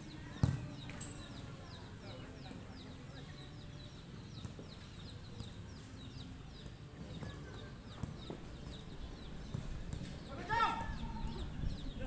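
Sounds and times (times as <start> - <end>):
football being kicked: 0.4 - 0.7.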